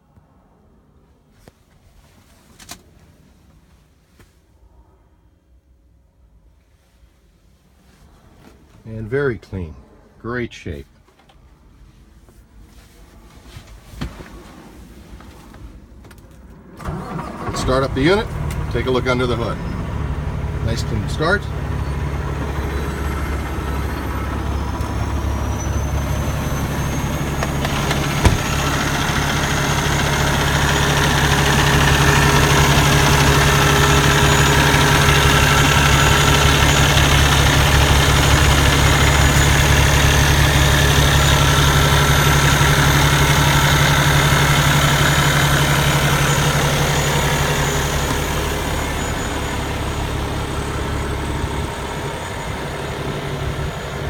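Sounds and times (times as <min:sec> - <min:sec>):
diesel truck engine idling: 0:16.8 - 0:54.0.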